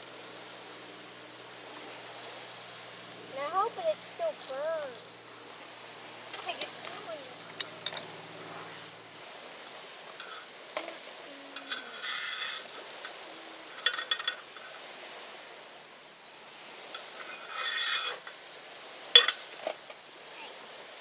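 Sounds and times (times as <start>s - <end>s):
utensil scraping in a pan: 0.0s - 9.2s, 10.2s - 11.0s, 11.6s - 14.9s, 17.0s - 18.2s.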